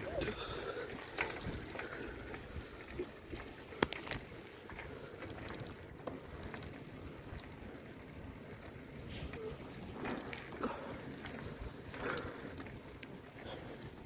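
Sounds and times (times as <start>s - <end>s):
bicycle rolling: 0.0s - 14.0s.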